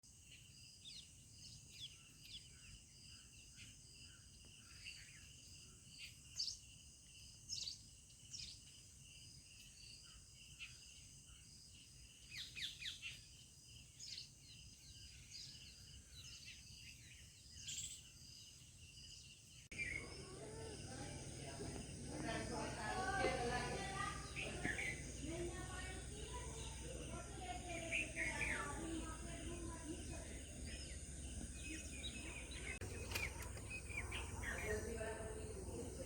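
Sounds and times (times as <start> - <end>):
bird chirps: 0.2 - 36.0
high insect trill: 16.9 - 36.0.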